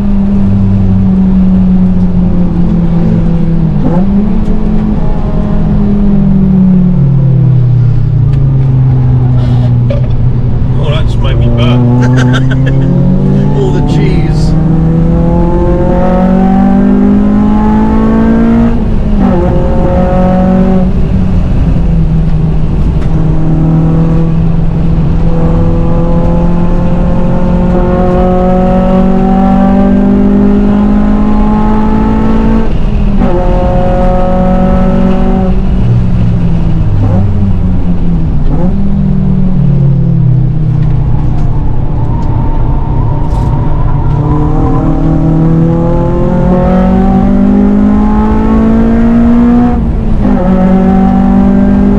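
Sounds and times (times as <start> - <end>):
car engine revving hard: 8.8 - 40.0, 43.2 - 51.9.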